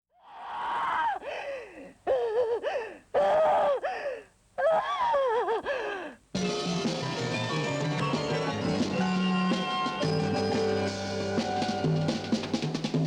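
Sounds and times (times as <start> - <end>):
music: 6.4 - 13.0.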